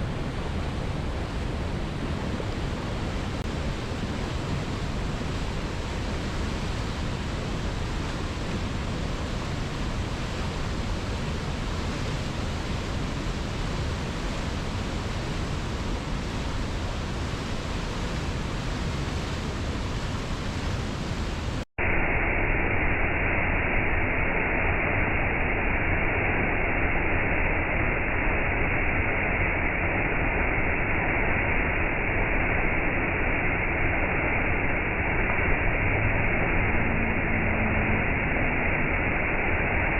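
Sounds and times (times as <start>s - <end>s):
waterfall rushing: 0.0s - 21.6s, 35.1s - 39.8s.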